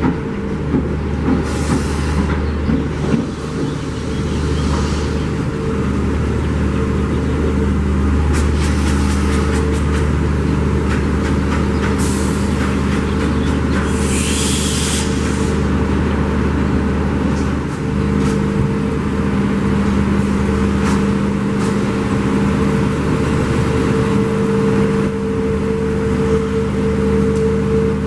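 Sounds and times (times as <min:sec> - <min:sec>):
diesel locomotive engine drone: 0:00.0 - 0:28.0
burst of hiss: 0:13.9 - 0:15.6.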